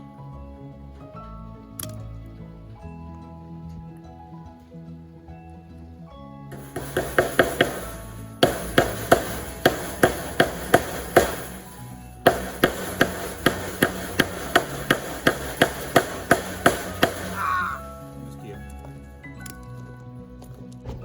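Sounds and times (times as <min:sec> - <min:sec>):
background music: 0:00.0 - 0:21.0
hammer striking tacks into wood: 0:06.6 - 0:17.8.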